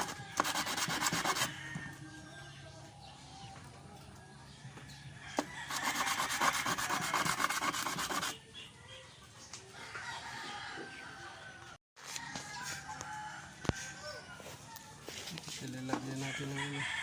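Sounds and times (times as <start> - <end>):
rubbing and handling noise: 0.0 - 1.6, 5.4 - 8.4
rhythmic scraping: 0.0 - 1.7, 5.4 - 8.4.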